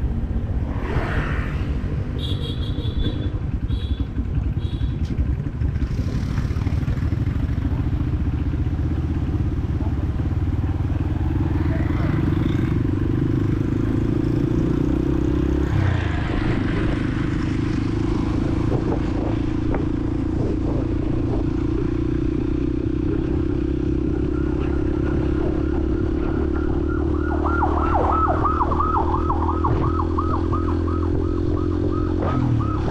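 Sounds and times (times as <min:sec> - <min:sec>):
city traffic: 0:00.0 - 0:32.9
motorcycle engine running: 0:02.2 - 0:15.4, 0:16.4 - 0:27.7.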